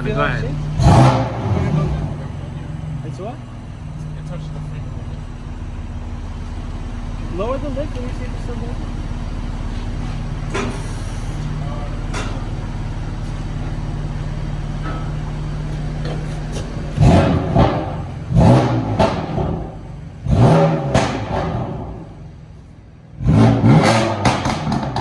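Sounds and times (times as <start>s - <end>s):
car engine idling and revving: 0.0s - 25.0s
crackling exhaust pops: 7.7s - 19.9s, 24.0s - 25.0s.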